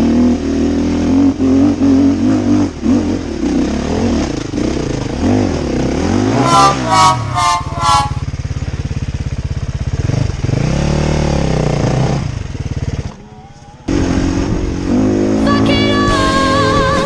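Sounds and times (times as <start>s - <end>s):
dirt bike engine revving: 5.2s - 8.3s.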